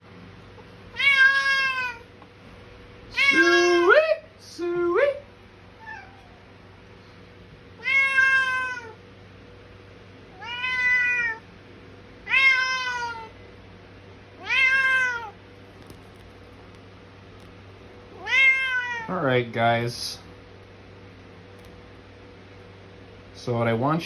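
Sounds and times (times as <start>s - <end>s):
cat meowing loudly: 0.9s - 2.0s, 3.1s - 4.0s, 7.8s - 9.0s, 10.4s - 11.4s, 12.2s - 13.3s, 14.4s - 15.4s, 18.2s - 19.1s.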